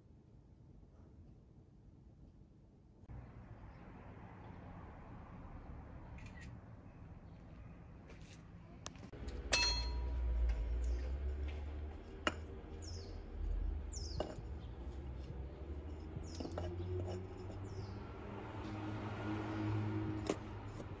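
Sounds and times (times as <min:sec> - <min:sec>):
small birds chirping: 0:12.7 - 0:17.0, 0:17.6 - 0:18.1.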